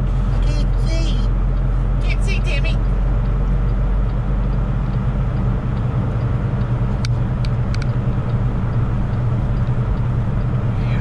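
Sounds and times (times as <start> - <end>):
truck engine and road drone: 0.0 - 11.0
sharp clicks: 2.8 - 10.6.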